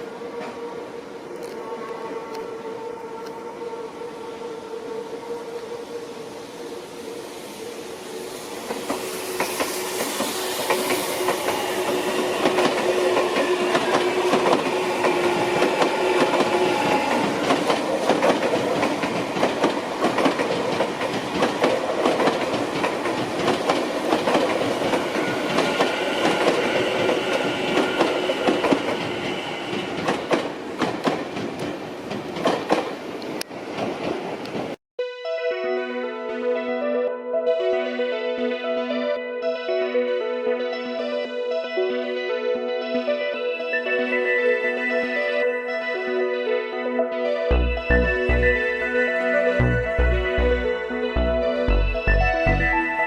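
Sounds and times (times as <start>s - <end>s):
train wheels clicking over rail joints: 8.6s - 34.8s.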